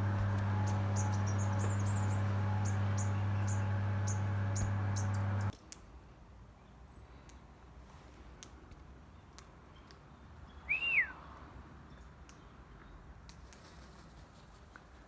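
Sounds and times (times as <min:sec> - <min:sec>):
bird whistled call: 0:10.6 - 0:11.2.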